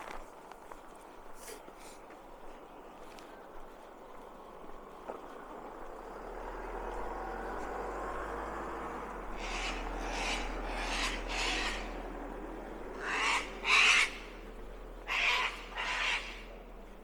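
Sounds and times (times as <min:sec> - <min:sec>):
bird giving harsh rasping calls: 0:09.3 - 0:16.9.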